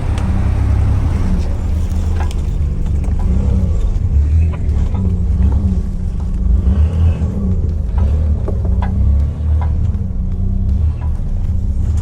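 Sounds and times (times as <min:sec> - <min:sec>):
engine running at low revs: 0:00.0 - 0:12.0.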